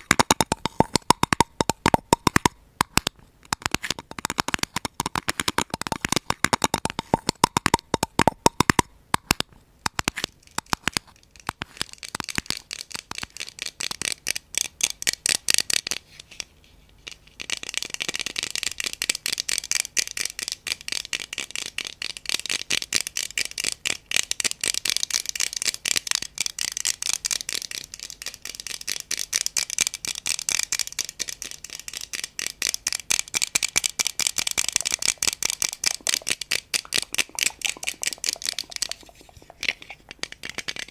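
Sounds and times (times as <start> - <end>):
tapping near microphone: 0.0 - 11.0, 33.8 - 40.9
scratching near microphone: 34.3 - 40.9.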